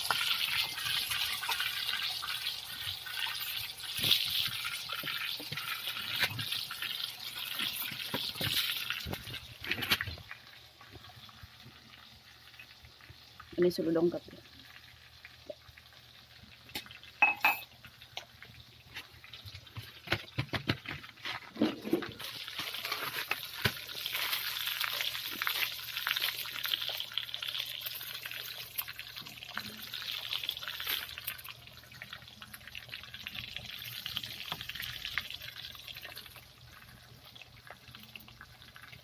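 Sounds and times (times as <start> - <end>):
meat sizzling in hot oil: 0.0 - 20.5, 21.9 - 39.0.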